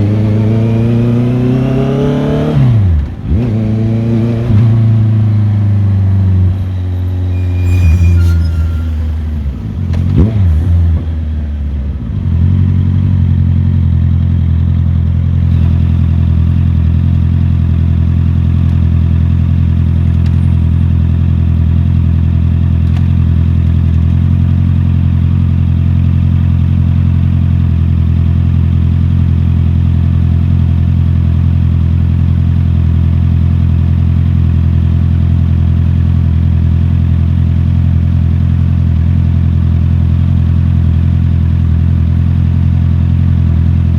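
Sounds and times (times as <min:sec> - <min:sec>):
motorcycle engine running: 0:09.7 - 0:43.9.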